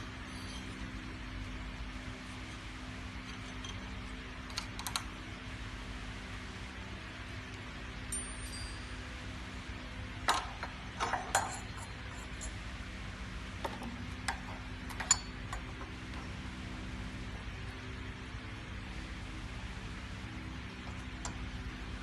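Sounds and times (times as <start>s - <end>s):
metal tools clinking: 3.2s - 4.1s, 10.3s - 12.6s, 14.9s - 15.8s.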